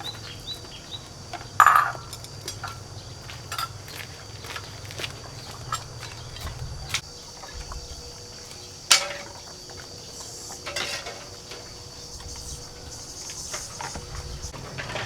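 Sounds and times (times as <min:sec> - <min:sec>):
high-pitched insect drone: 0:00.0 - 0:14.6
sharp clinks: 0:01.6 - 0:04.0.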